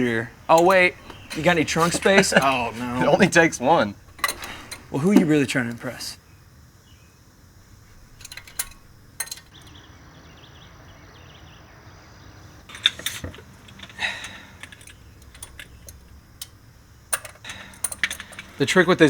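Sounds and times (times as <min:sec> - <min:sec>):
metal hand tools clinking: 0:00.0 - 0:05.9, 0:07.6 - 0:09.8, 0:12.6 - 0:19.0.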